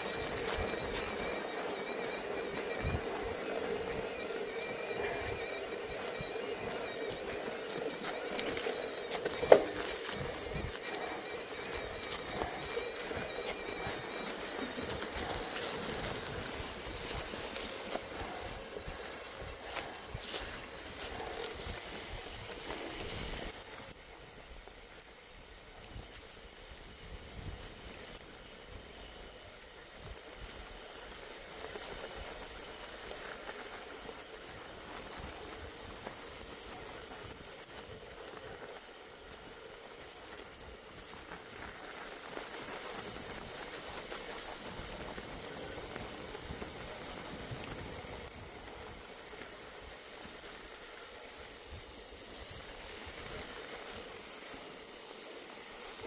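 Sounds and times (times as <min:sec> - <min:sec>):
bicycle rolling over snow: 0:00.0 - 0:56.0
high-pitched squeal: 0:23.3 - 0:51.8.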